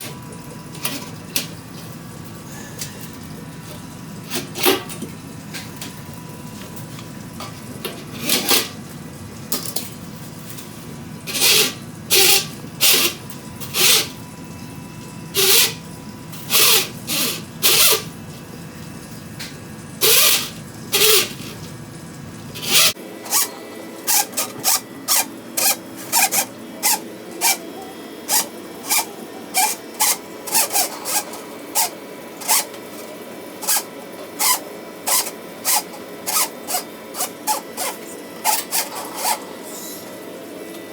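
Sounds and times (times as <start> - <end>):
rasping tool scrapes: 22.6 - 27.6, 28.3 - 32.7, 33.6 - 39.4.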